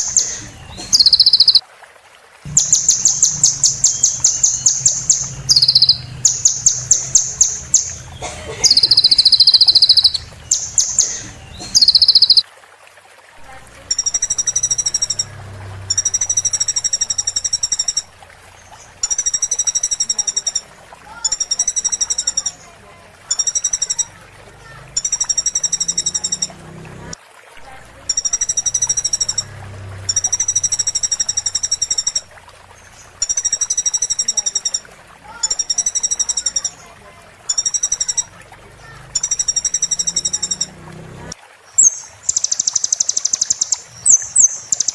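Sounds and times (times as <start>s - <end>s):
bird singing high-pitched trill: 0.0s - 1.6s, 2.5s - 12.4s, 13.9s - 18.1s, 18.7s - 20.6s, 21.3s - 22.7s, 23.3s - 24.1s, 25.0s - 26.5s, 28.1s - 29.5s, 35.5s - 36.9s, 37.5s - 38.3s, 39.2s - 40.7s, 41.8s - 44.9s
sunbird high-pitched song: 0.0s - 1.6s, 2.5s - 12.4s, 13.8s - 20.6s, 21.2s - 24.2s, 24.8s - 26.6s, 28.1s - 38.4s, 39.2s - 40.8s, 41.8s - 44.9s.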